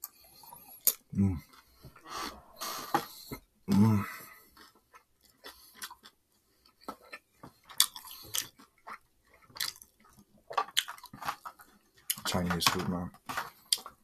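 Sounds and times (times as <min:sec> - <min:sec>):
chewing and mouth clicks: 0:00.0 - 0:03.4, 0:04.1 - 0:12.3, 0:13.3 - 0:14.0
low voice hum: 0:01.1 - 0:01.4, 0:03.7 - 0:04.2.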